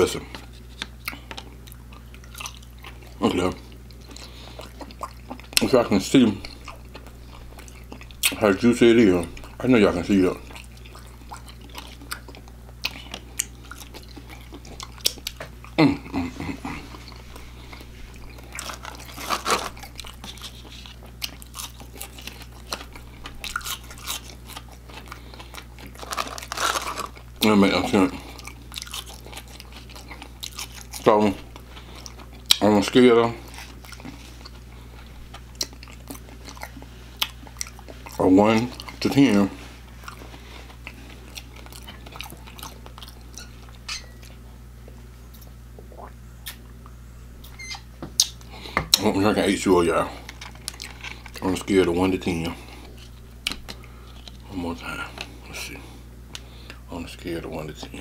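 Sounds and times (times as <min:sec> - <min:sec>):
chewing crispy fried food: 0:00.0 - 0:47.0, 0:48.2 - 0:56.9
steady low hum: 0:00.0 - 0:58.0
wet mouth clicks chewing: 0:10.5 - 0:15.8, 0:45.3 - 0:46.7, 0:48.2 - 0:48.4
wet mouth clicks: 0:45.8 - 0:46.7, 0:48.2 - 0:48.4.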